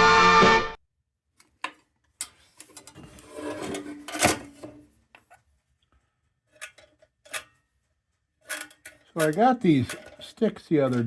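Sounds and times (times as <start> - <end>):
objects scraping on a workbench: 2.8 - 4.8.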